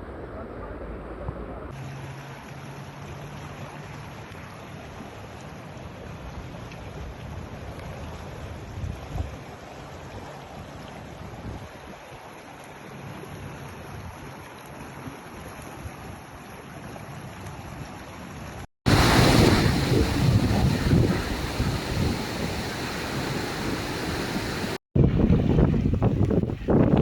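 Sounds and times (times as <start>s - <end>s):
floodwater rushing: 18.9s - 24.8s
wind buffeting microphone: 18.9s - 27.0s.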